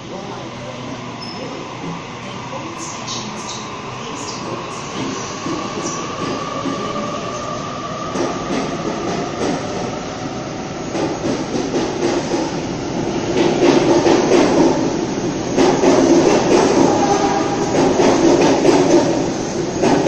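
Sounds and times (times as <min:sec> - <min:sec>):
electric train high whine: 0:12.5 - 0:20.0.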